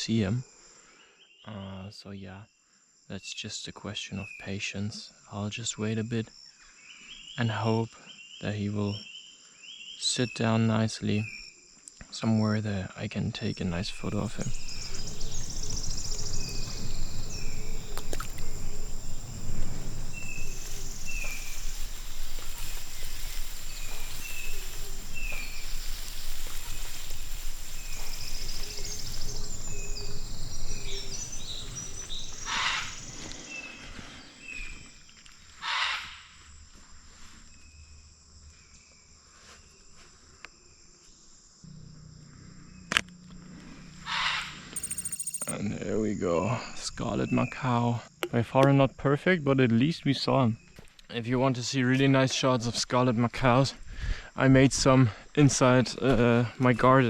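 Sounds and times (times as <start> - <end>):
high insect hiss: 13.1 - 48.2
loud harsh bird squawks: 32.4 - 33.1, 35.6 - 36.2, 44.0 - 44.6.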